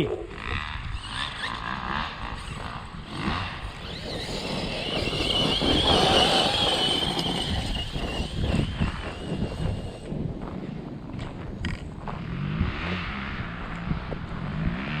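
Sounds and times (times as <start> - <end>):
rc truck motor whine: 0.4 - 10.6.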